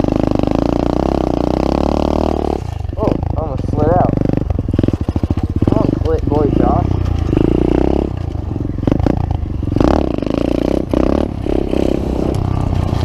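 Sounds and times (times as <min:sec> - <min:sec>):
small engine revving: 0:00.0 - 0:13.0
clattering and scraping: 0:10.8 - 0:13.0.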